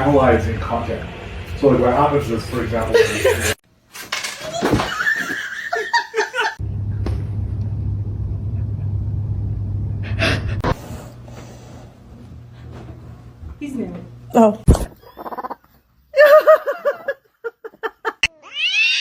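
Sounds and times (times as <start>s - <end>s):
steady low hum: 0.0s - 3.6s, 6.6s - 15.0s
person laughing: 2.5s - 3.6s, 4.4s - 6.6s, 14.9s - 15.6s, 16.2s - 18.3s.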